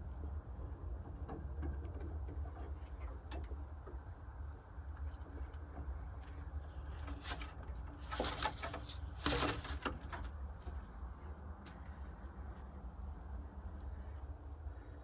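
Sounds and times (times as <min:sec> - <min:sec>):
pigeon wings flapping: 0:08.0 - 0:09.9.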